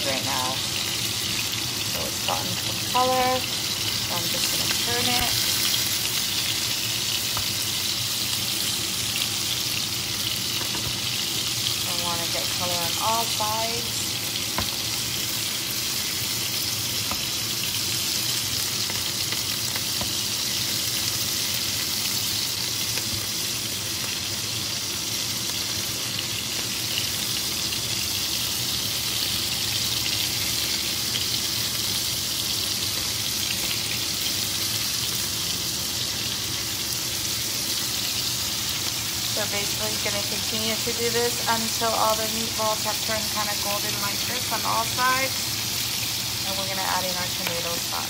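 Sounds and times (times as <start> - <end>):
meatballs sizzling in oil: 0.0 - 48.0.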